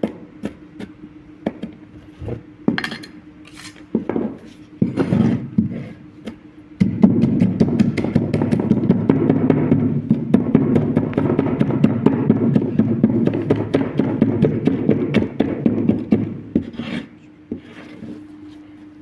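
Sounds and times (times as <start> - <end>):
meat being pounded on a board: 0.0 - 1.8, 3.9 - 16.8.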